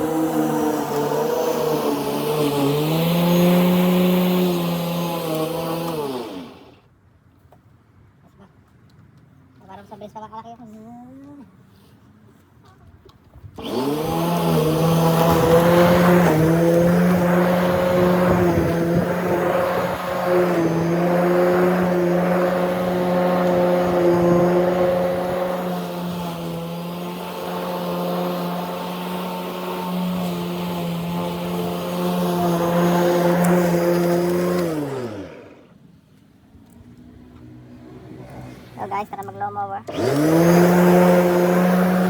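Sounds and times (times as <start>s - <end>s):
lawn mower motor running: 0.0s - 6.8s, 13.6s - 35.8s, 39.8s - 42.0s.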